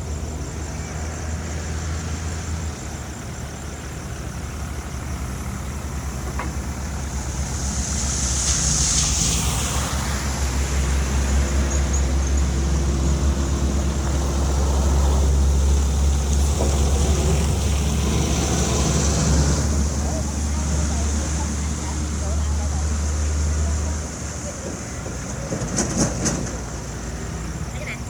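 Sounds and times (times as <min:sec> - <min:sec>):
high hiss: 0:00.0 - 0:22.2
heavy engine humming: 0:00.0 - 0:28.0.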